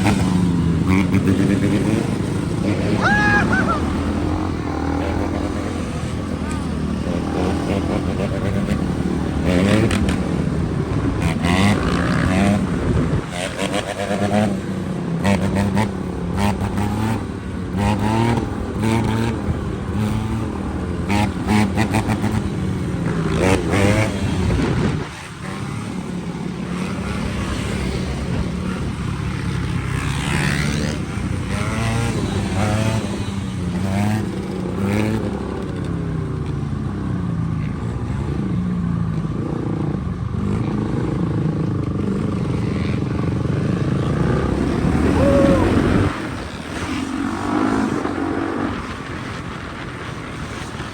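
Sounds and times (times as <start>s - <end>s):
dirt bike engine revving: 0.0s - 25.9s, 39.2s - 48.9s.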